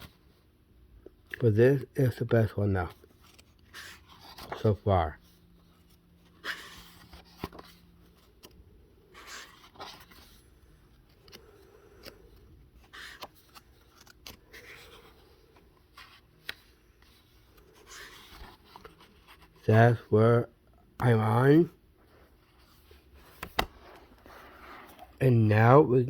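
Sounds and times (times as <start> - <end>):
paper pages rustling: 2.8 - 19.7, 22.0 - 25.2.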